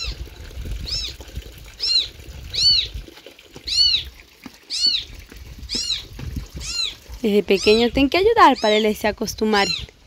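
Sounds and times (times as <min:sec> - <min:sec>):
small animal high-pitched calls: 0:00.8 - 0:01.2, 0:01.8 - 0:02.9, 0:03.6 - 0:04.1, 0:04.7 - 0:05.1, 0:05.7 - 0:07.0, 0:07.6 - 0:08.9, 0:09.6 - 0:09.9.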